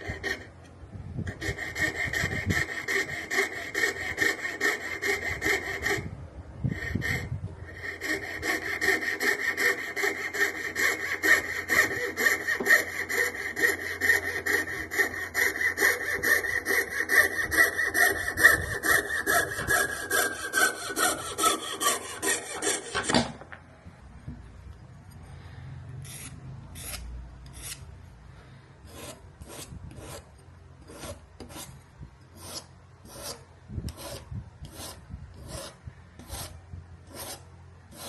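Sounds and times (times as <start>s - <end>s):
hand saw cutting bone: 1.4s - 6.0s, 7.8s - 23.2s.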